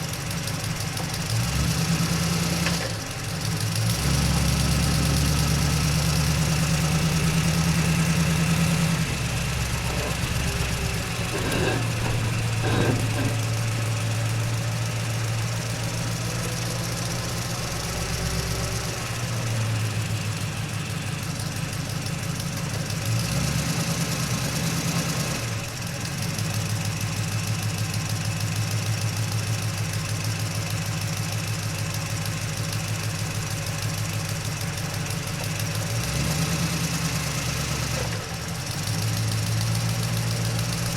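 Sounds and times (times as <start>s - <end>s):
truck engine running: 3.2s - 20.3s.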